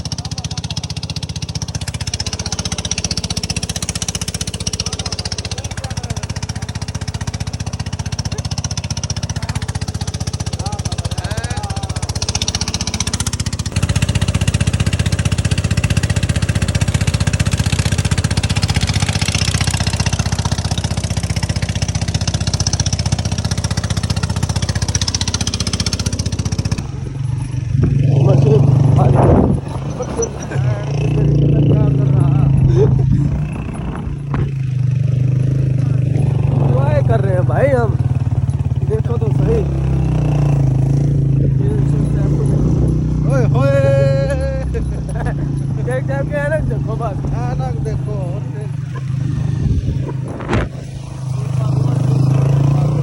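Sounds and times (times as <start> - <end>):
vehicle engine droning: 0.0 - 53.0.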